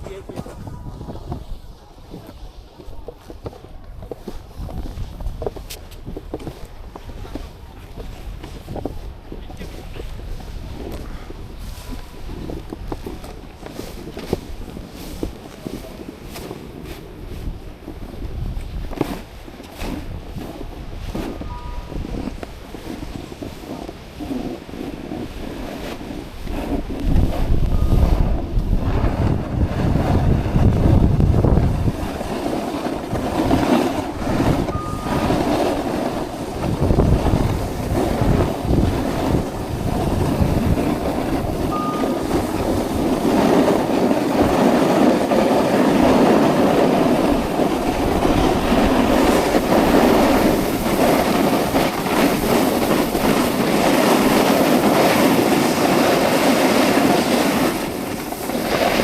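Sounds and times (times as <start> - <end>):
snowboard scraping over snow: 0.0 - 59.0
wind buffeting microphone: 0.0 - 59.0.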